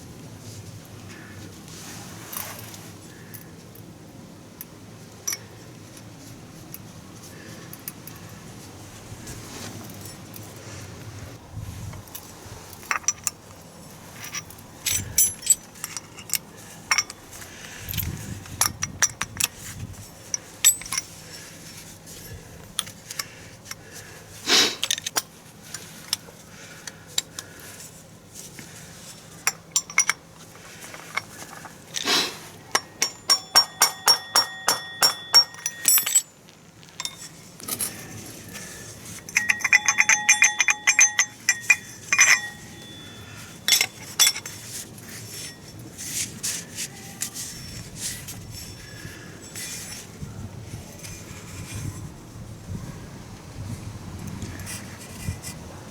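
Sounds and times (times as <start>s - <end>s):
metal tools clinking and knocking: 12.8s - 13.4s, 14.2s - 17.3s, 17.9s - 21.2s, 29.3s - 32.1s, 32.7s - 44.7s, 48.6s - 50.1s
ringing metal ticks: 32.7s - 36.3s, 39.2s - 44.4s
rapid metallic jingle: 32.8s - 36.3s, 39.2s - 44.5s.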